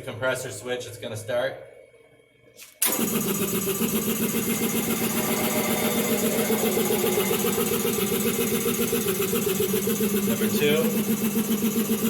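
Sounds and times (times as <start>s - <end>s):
compressor pulsing: 2.8s - 12.0s.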